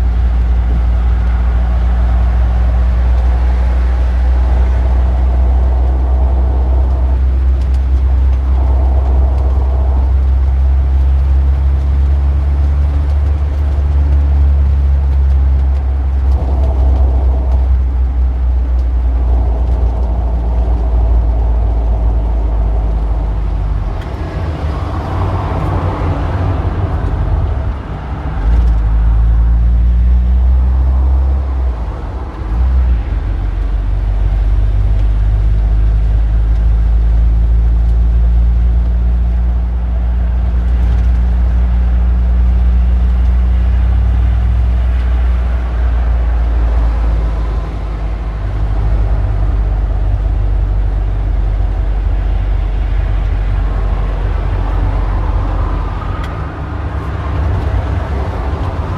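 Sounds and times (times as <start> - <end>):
low traffic engine rumble: 0.0 - 58.9
vehicle passing: 52.1 - 58.9.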